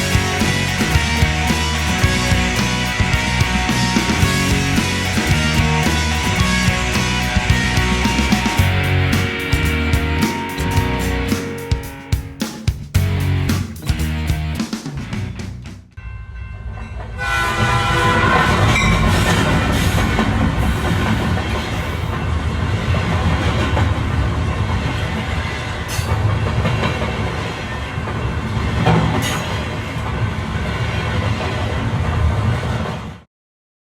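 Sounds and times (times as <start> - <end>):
train horn: 0.0 - 8.4, 17.2 - 21.0
train wheels rumbling on track: 0.0 - 12.4, 16.6 - 33.3.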